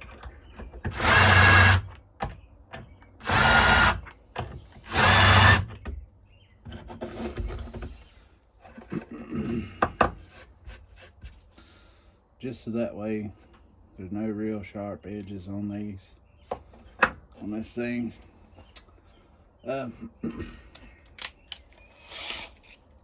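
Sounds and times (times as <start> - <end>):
electric drill bursts: 0.9 - 1.9, 3.2 - 4.1, 4.8 - 5.7, 21.8 - 22.6.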